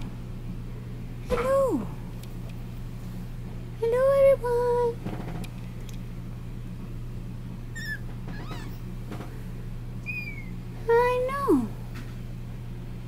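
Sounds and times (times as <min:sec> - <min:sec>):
steady low hum: 0:00.0 - 0:13.0
kittens mewing: 0:07.8 - 0:09.0, 0:10.0 - 0:10.7.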